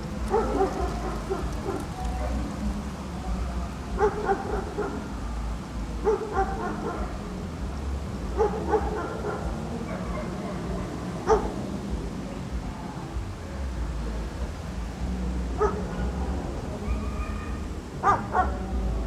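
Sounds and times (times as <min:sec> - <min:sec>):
low background rumble: 0:00.0 - 0:09.9
dog barking: 0:00.2 - 0:02.6, 0:03.9 - 0:05.2, 0:06.0 - 0:07.2, 0:08.4 - 0:11.7, 0:15.6 - 0:18.8.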